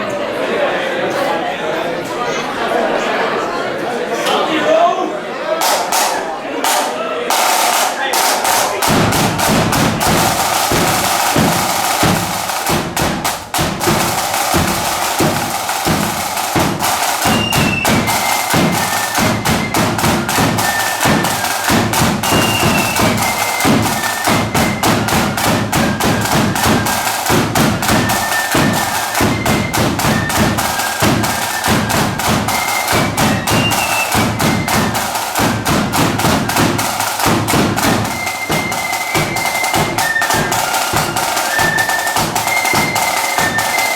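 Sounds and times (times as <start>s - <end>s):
snare drum strokes: 5.6s - 43.9s
bass drum beats: 8.4s - 41.2s
high flute melody: 13.9s - 43.9s.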